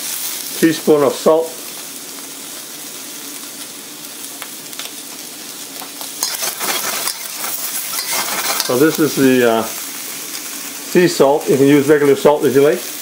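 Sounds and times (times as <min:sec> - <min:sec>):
meat sizzling in hot oil: 0:00.0 - 0:13.0
metal spatula scraping a wok: 0:06.2 - 0:09.2.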